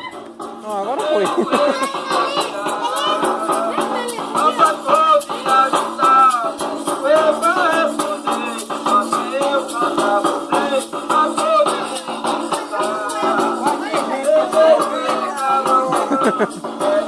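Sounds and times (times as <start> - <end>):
shaker rhythm: 0.0 - 17.0
voices singing a melody: 1.0 - 17.0.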